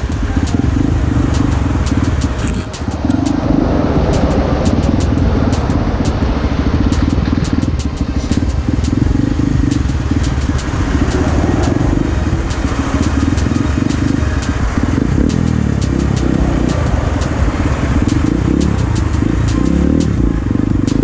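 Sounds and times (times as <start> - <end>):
sharp ticks: 0.0 - 21.0
small motorcycle engine running: 0.0 - 21.0.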